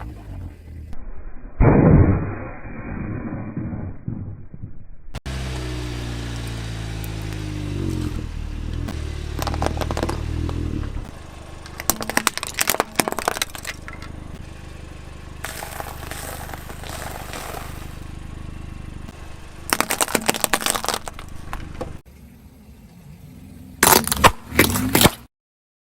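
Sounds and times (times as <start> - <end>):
car engine running: 0.0 - 1.0, 5.2 - 25.0
tyre crushing brittle objects: 9.4 - 10.6, 11.6 - 14.1, 15.4 - 18.0, 19.7 - 22.0, 23.8 - 25.2.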